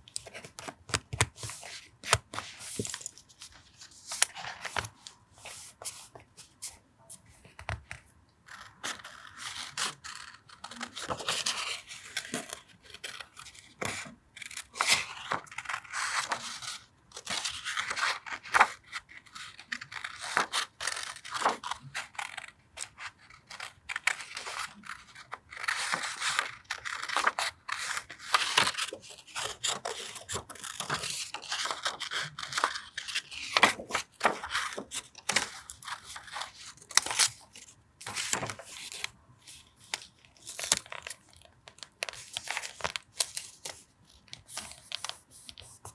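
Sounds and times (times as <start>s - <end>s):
paper taps and rustles: 0.1s - 6.3s, 38.0s - 39.1s.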